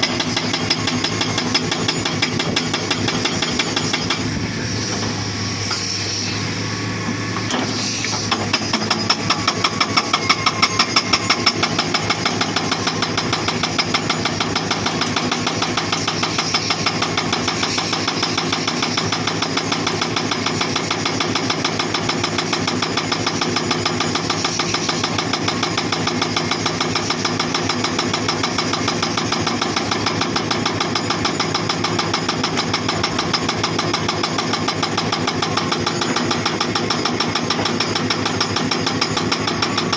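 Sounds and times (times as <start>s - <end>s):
hydraulic breaker hammering rock: 0.0s - 5.9s, 7.1s - 39.9s
diesel engine running: 0.0s - 19.3s.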